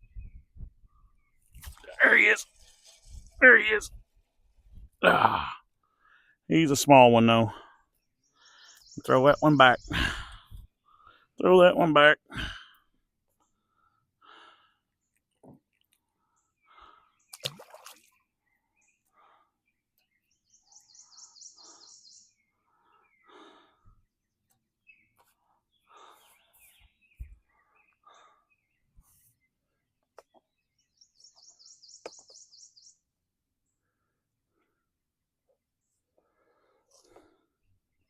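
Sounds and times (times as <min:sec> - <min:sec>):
heavy congested breathing: 0:05.0 - 0:06.5, 0:09.8 - 0:11.4, 0:12.2 - 0:15.0, 0:16.1 - 0:17.2, 0:21.0 - 0:24.2, 0:25.3 - 0:29.2.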